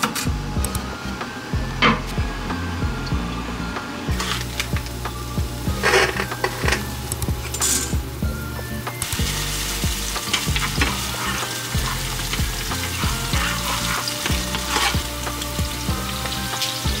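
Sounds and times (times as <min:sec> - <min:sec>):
food sizzling in oil: 0:09.0 - 0:17.0.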